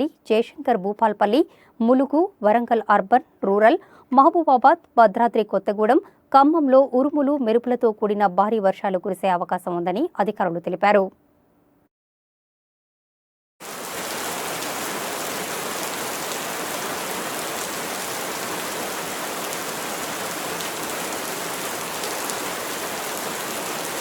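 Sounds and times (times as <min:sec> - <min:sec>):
steady rain falling: 0:13.6 - 0:24.0.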